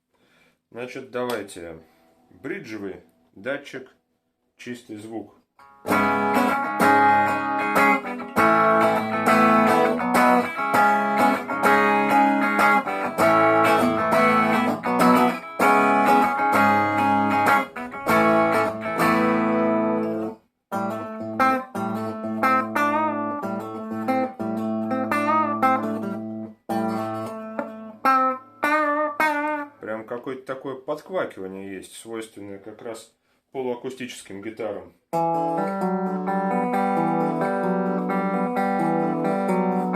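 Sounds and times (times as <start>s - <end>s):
electric guitar bent picked notes: 5.6s - 29.8s, 35.2s - 39.9s
electric guitar strummed chords: 5.6s - 29.8s, 35.2s - 39.9s.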